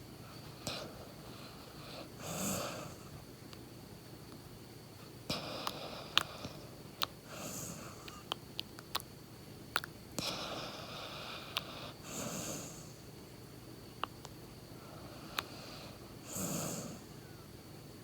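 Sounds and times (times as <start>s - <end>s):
dog snoring and snuffling: 0.4s - 3.2s, 5.2s - 9.0s, 9.8s - 13.1s, 14.8s - 17.1s.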